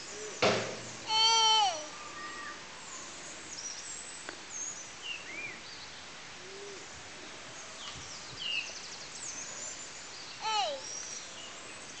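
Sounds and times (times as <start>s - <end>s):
outdoor ambience hiss: 0.0s - 12.0s.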